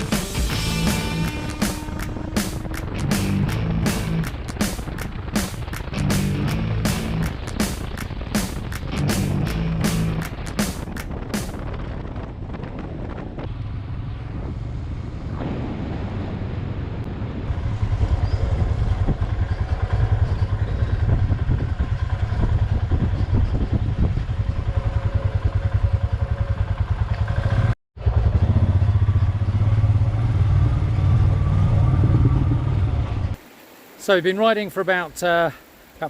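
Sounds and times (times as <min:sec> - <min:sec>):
motorcycle engine running: 0:00.0 - 0:12.0, 0:17.1 - 0:33.2.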